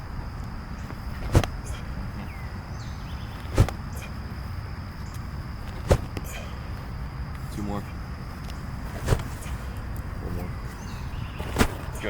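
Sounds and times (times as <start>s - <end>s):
football smacking into hands: 0.9s - 1.6s, 3.4s - 3.8s, 5.7s - 6.3s, 8.9s - 9.5s.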